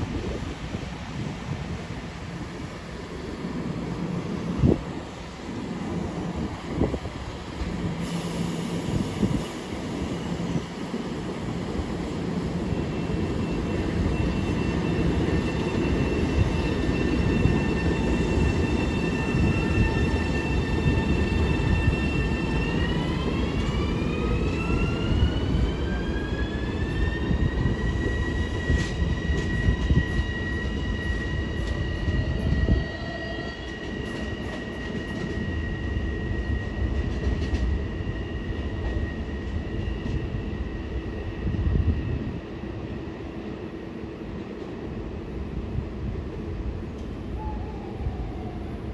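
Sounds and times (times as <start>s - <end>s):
train wheels rumbling on rails: 0.0s - 48.9s
train whine rising in pitch: 12.0s - 43.8s, 46.5s - 48.9s.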